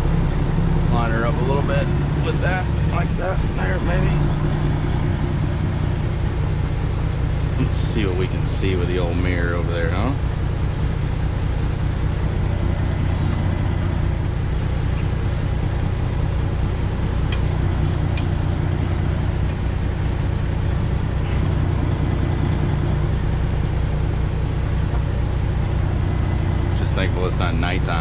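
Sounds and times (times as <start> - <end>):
truck engine droning: 0.0 - 28.0.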